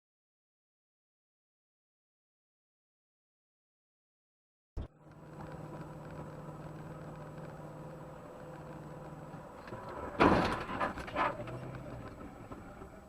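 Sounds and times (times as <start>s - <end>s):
car engine running: 4.8s - 13.0s
vehicle collision impact: 9.6s - 13.0s.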